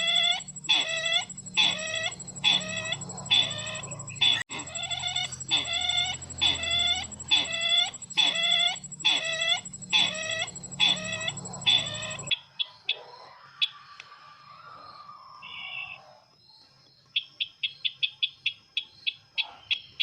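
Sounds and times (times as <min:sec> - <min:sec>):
high whine and low hum: 0:00.0 - 0:12.3
faint bird chirps: 0:00.0 - 0:12.8
recorded bird call: 0:00.0 - 0:16.2.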